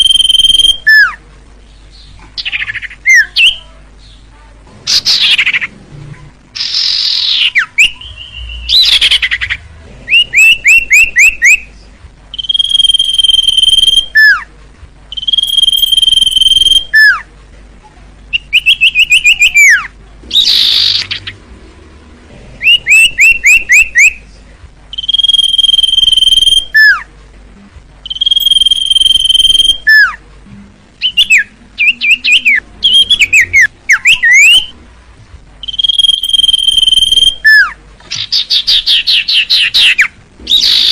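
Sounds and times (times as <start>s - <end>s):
bird twittering: 0.0s - 1.2s, 6.6s - 11.6s, 12.3s - 14.4s, 15.1s - 17.2s, 18.3s - 21.4s, 22.6s - 24.2s, 24.9s - 27.0s, 28.0s - 30.2s, 31.0s - 34.7s, 35.6s - 40.9s
bird whistling song: 0.0s - 1.2s, 6.6s - 11.7s, 12.3s - 14.5s, 15.1s - 17.2s, 18.3s - 21.4s, 22.6s - 24.2s, 24.9s - 27.1s, 28.0s - 30.2s, 31.0s - 34.7s, 35.6s - 40.9s.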